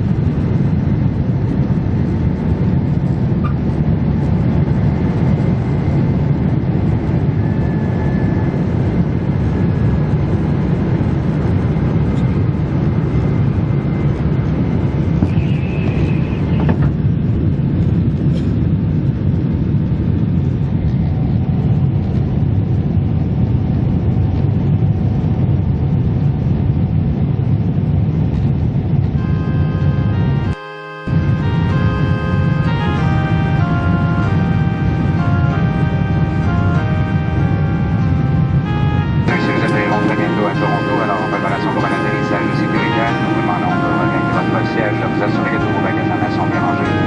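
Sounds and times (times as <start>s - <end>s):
aircraft cabin engine rumble: 0.0s - 47.0s
brief high tone: 29.2s - 47.0s
music: 29.2s - 47.0s.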